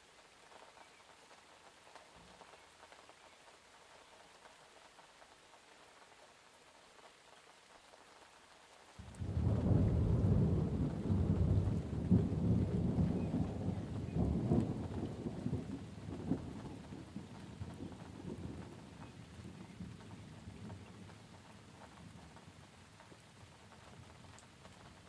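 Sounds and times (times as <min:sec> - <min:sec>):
light rain falling: 0:00.0 - 0:25.0
thunder rumbling: 0:09.0 - 0:22.7.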